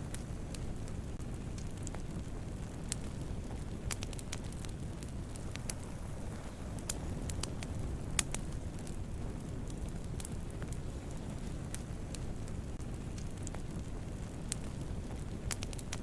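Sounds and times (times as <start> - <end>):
campfire crackles and pops: 0.0 - 16.0
campfire rushing: 0.0 - 16.0.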